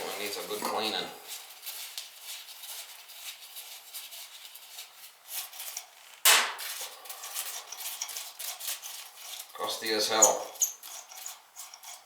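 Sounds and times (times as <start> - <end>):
metal scraping and rubbing: 5.4 - 12.0
sharp metal clank: 6.3 - 6.6.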